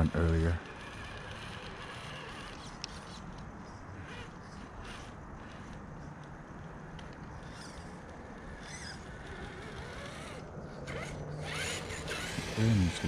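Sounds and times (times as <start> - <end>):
electric motor whining: 0.0 - 3.2, 4.0 - 5.9, 7.4 - 13.0
creaks and squeaks: 0.0 - 13.0.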